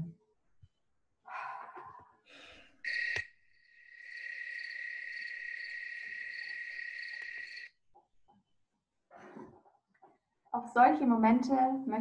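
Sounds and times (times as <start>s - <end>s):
crickets chirring: 2.8s - 7.7s.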